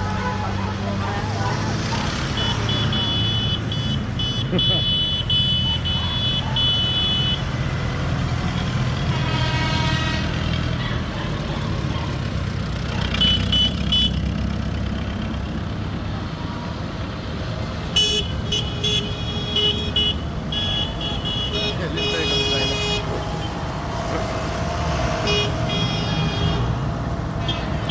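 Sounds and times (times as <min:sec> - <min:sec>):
tractor engines running: 0:00.0 - 0:27.9
horn sounding: 0:02.3 - 0:07.6, 0:08.6 - 0:10.7, 0:17.9 - 0:27.9.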